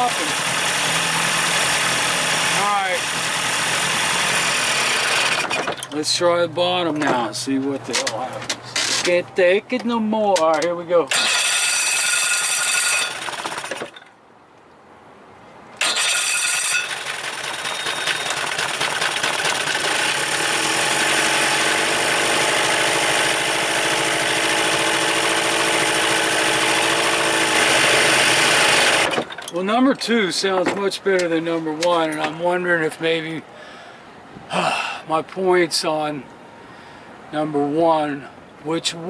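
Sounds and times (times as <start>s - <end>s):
two-stroke outboard motor running: 0.0s - 5.9s, 11.1s - 14.0s, 15.8s - 29.5s.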